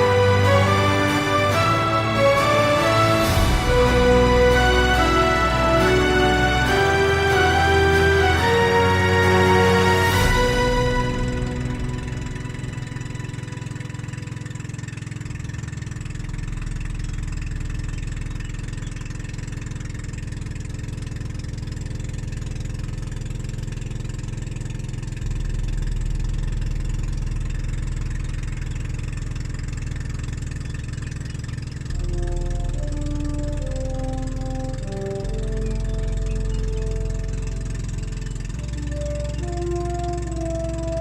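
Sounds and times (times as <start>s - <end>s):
motorboat engine drone: 0.0s - 41.0s.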